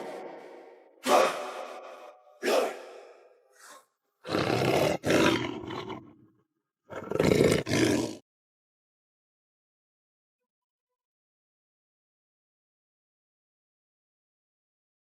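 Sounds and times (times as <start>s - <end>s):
werewolf roars: 4.3s - 6.1s, 6.9s - 8.2s.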